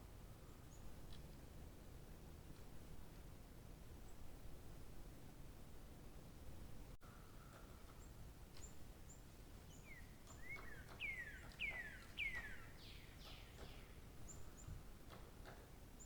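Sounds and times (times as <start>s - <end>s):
faint outdoor background: 0.0s - 16.0s
bird whistling song: 9.7s - 14.7s.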